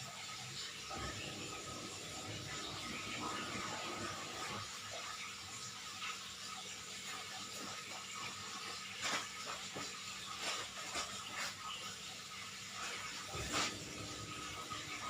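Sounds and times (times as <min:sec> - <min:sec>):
steady hiss: 0:07.0 - 0:15.0.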